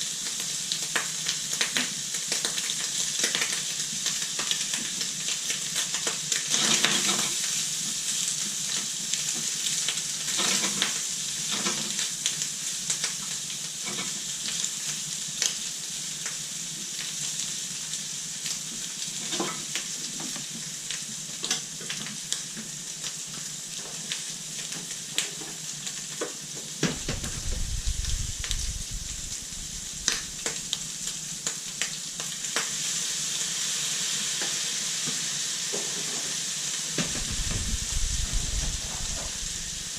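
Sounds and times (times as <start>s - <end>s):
food sizzling in a pan: 0.0s - 39.9s
low rumble: 27.0s - 30.6s, 37.1s - 39.9s.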